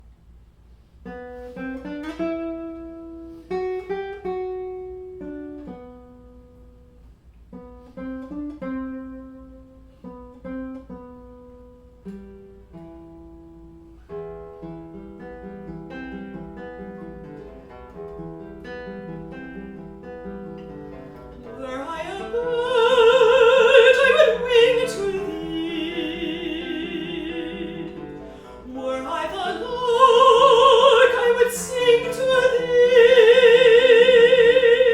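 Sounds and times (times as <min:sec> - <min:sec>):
plucked guitar: 0:01.0 - 0:34.9
classical voice singing: 0:21.4 - 0:34.9.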